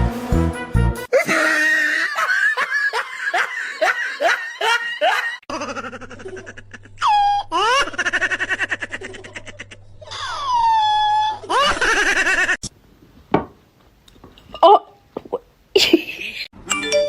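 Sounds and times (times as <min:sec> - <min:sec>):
rhythmic laughter: 0:01.1 - 0:10.4.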